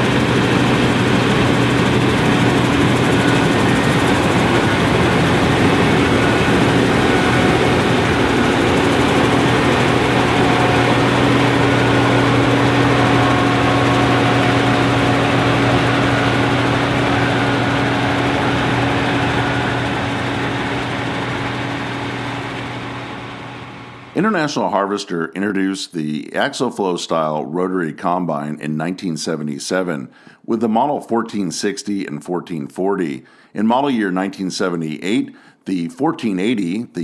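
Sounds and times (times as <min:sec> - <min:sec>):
combine harvester diesel engine: 0:00.0 - 0:24.2.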